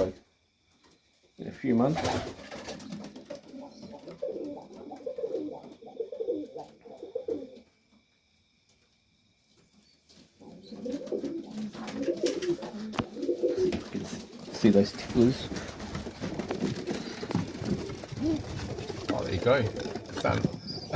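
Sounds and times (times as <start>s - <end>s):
pigeons cooing: 2.0s - 7.7s, 10.4s - 20.9s.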